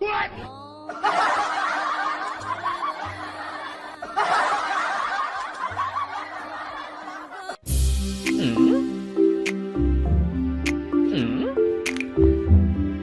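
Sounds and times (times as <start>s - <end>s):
light background music: 0.5s - 13.0s
laugh track: 0.8s - 7.7s, 8.3s - 9.0s.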